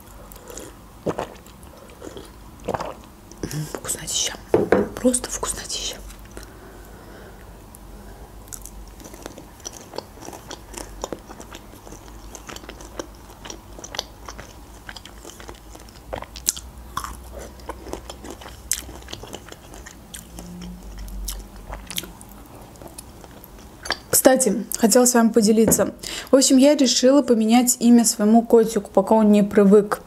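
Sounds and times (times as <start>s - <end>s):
close chewing with mouth smacks: 0.0s - 3.6s, 8.5s - 24.2s.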